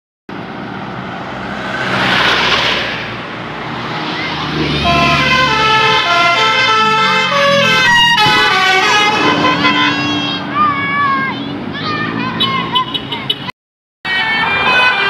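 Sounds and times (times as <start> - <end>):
traffic and engine noise: 0.3 - 15.0
multi-tone bus horn playing a tune: 4.8 - 10.5, 14.1 - 15.0.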